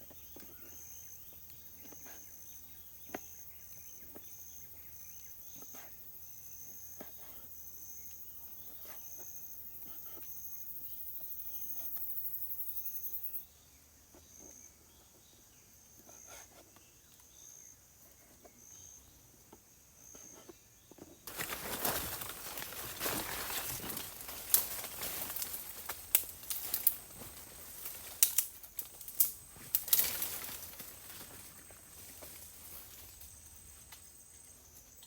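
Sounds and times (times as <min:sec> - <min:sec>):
insect high chirp: 0:00.0 - 0:35.0
loud rustling: 0:21.3 - 0:33.0.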